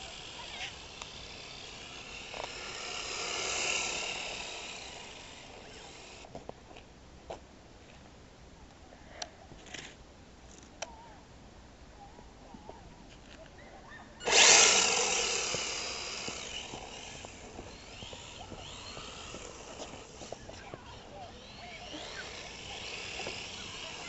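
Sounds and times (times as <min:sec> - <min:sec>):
toy car motor whine and tyre hiss: 0:00.0 - 0:06.3, 0:14.2 - 0:24.0.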